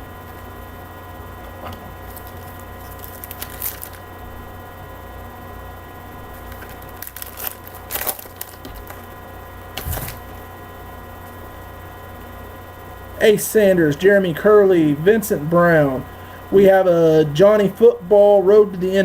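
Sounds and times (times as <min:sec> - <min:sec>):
steady electrical hum: 0:00.0 - 0:19.0
cards being handled: 0:02.0 - 0:04.0, 0:06.4 - 0:09.1, 0:09.8 - 0:10.4
foil pack crinkling and tearing: 0:02.0 - 0:04.1, 0:06.3 - 0:10.4.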